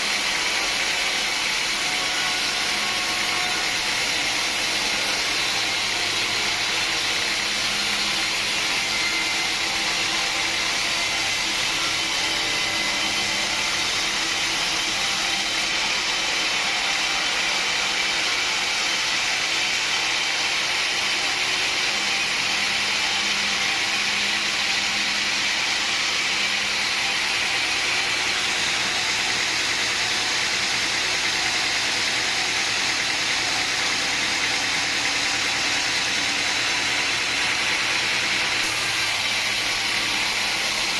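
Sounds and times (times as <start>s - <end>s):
machine running steadily: 0.0s - 40.9s.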